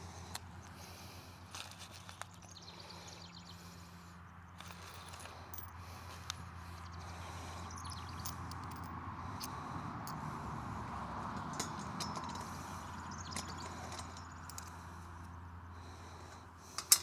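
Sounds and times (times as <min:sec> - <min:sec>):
metal parts clicking and knocking: 0:04.6 - 0:05.7, 0:07.8 - 0:10.3, 0:11.4 - 0:14.8, 0:16.8 - 0:17.0.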